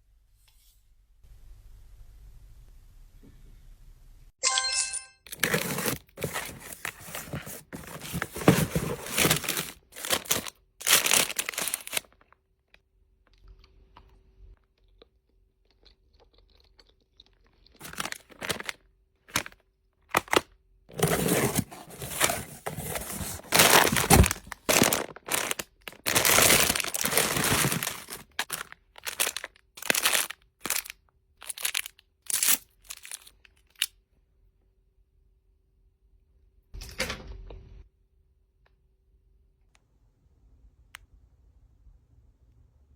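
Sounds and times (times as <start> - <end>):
packaging crinkling and tearing: 5.3 - 12.4, 17.7 - 33.9.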